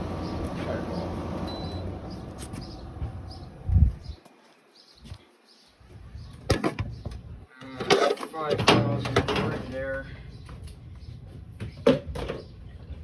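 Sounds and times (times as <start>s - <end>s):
faint high chirps: 1.5s - 1.9s.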